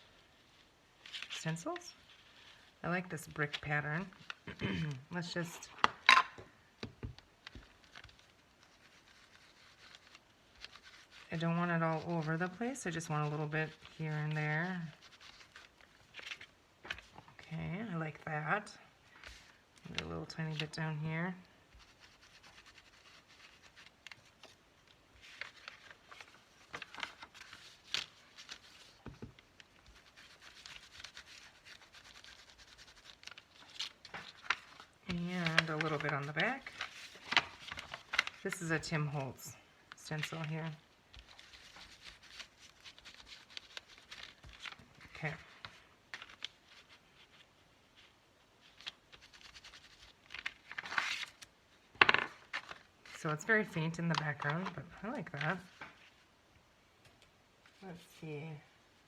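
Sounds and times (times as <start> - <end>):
stencil rustling and scraping paper: 7.4 - 17.2, 21.7 - 39.3, 40.0 - 51.5
scratchy rubbing and dabbing: 8.1 - 15.7, 21.7 - 24.4, 29.8 - 33.7.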